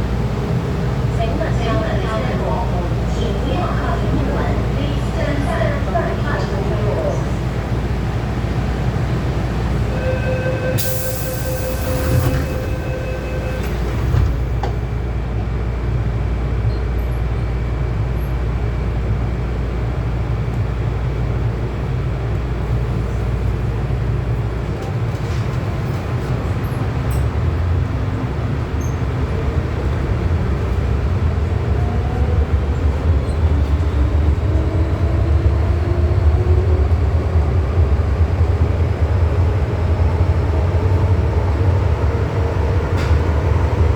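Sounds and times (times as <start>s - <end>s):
train wheel rumble: 0.0s - 43.9s
train warning tone: 9.7s - 14.7s
traction motors whining: 10.0s - 14.8s.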